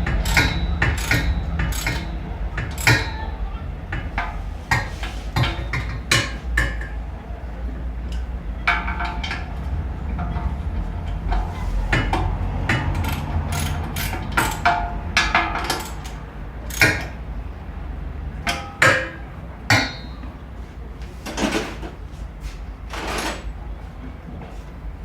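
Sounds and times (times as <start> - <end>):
hand tools knocking on metal: 0.0 - 17.3, 18.2 - 20.4
steady low hum: 0.0 - 21.1.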